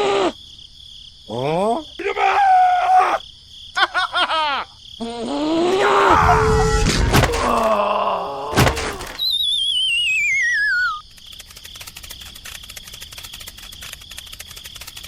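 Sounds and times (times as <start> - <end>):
sharp knocks: 6.8 - 7.8, 8.6 - 9.2
wavering whistle sliding down: 9.2 - 11.0.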